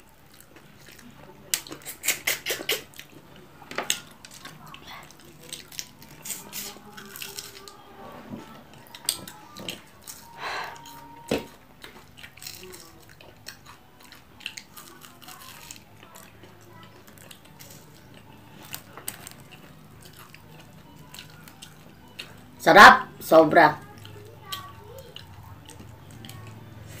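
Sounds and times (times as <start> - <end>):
chewing and crunching fried fish: 0.0 - 27.0
small clicks and crackles: 11.8 - 22.4.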